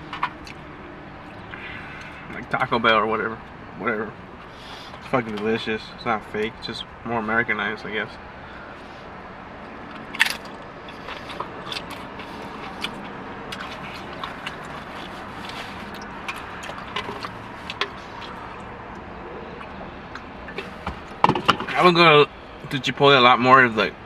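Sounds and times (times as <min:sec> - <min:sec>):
low hum inside a car: 0:00.0 - 0:24.0
chewing and mouth sounds: 0:09.8 - 0:21.2.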